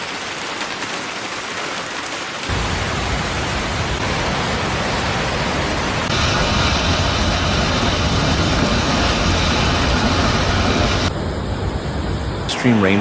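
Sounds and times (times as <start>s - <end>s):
heavy rain hissing: 0.0s - 11.1s
deep rushing noise: 2.5s - 13.0s.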